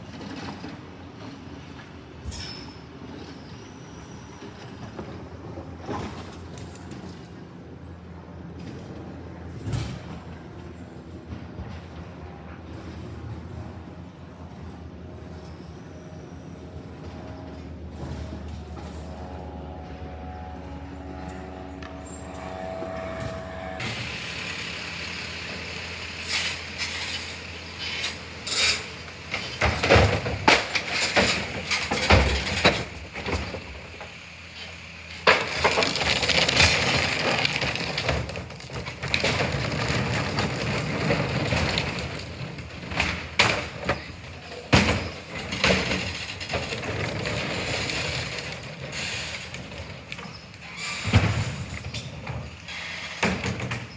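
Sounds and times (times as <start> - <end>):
garbage truck engine hum: 0.0 - 53.9.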